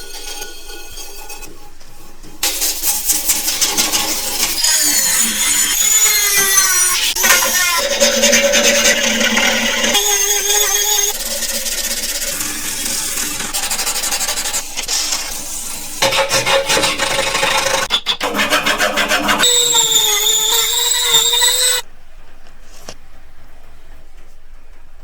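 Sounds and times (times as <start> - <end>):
filing metal: 0.0 - 21.8
wavering whine: 3.8 - 13.8, 19.4 - 21.9.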